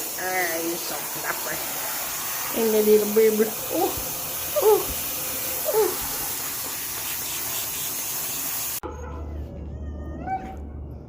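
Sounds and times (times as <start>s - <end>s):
water spraying from tap: 0.0s - 8.8s.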